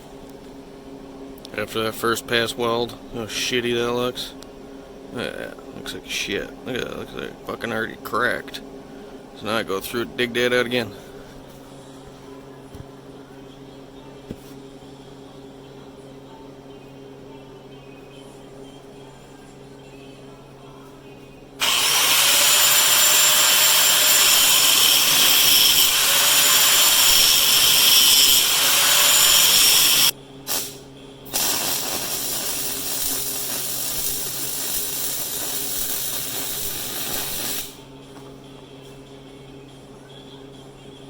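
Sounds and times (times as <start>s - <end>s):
power grinder grinding metal: 21.6s - 30.1s, 31.4s - 37.8s.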